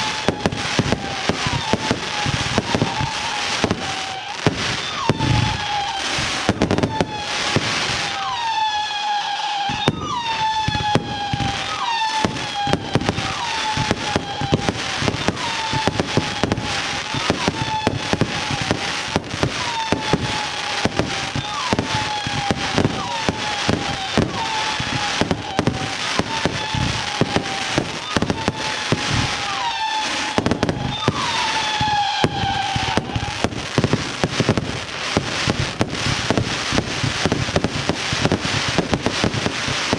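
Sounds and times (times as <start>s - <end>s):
falling firework whistle: 0.0s - 39.9s
fireworks crackling and banging: 0.0s - 39.9s.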